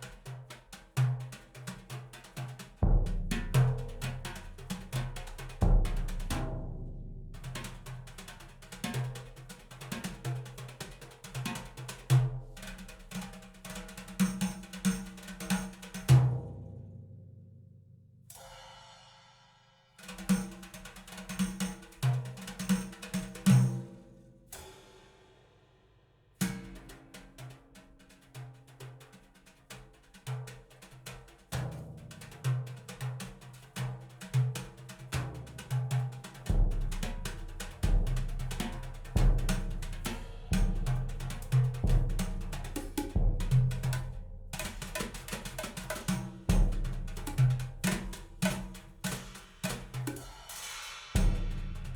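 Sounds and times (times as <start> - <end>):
drum-led percussion music: 0.0 - 16.4, 20.0 - 25.1, 26.4 - 51.9
bass drum hits: 2.8 - 4.6, 37.8 - 44.8, 51.2 - 51.9
snare drum hits: 36.6 - 51.9.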